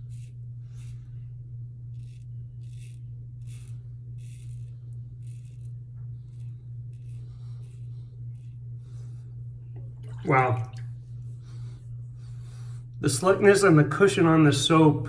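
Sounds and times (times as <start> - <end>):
razor scraping stubble: 0.0 - 10.0
steady low hum: 0.0 - 15.0.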